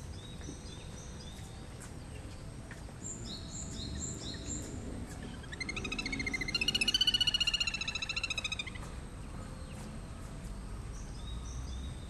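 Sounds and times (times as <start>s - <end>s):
whistled bird notes: 3.2s - 8.8s
rapid whinnying bird trill: 5.4s - 8.8s.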